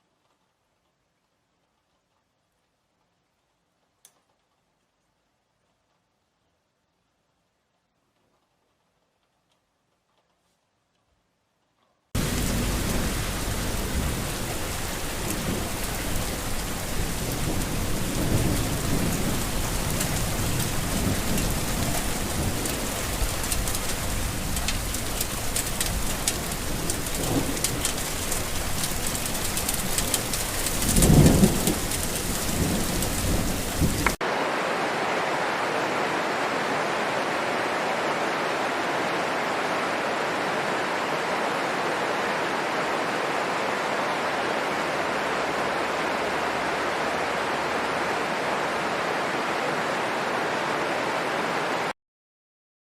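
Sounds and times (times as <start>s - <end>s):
heavy rain pattering: 11.7s - 51.9s
steady rushing hiss: 12.1s - 51.2s
thunder rumbling: 12.2s - 34.2s.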